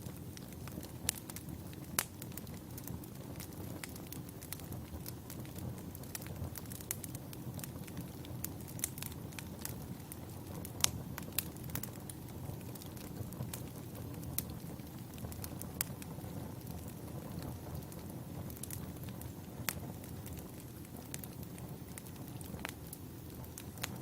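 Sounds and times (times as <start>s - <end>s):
firewood crackling: 0.0s - 24.0s
low fire rumble: 0.0s - 24.0s.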